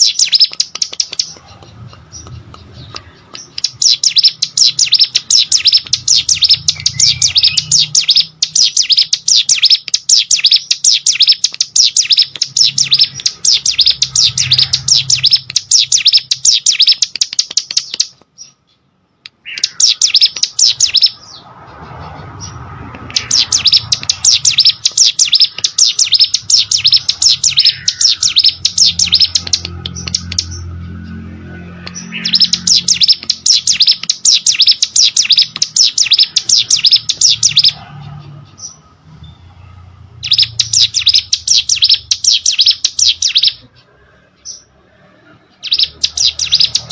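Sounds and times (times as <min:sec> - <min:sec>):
bird singing rapid high notes: 0:00.0 - 0:43.8, 0:45.4 - 0:46.9.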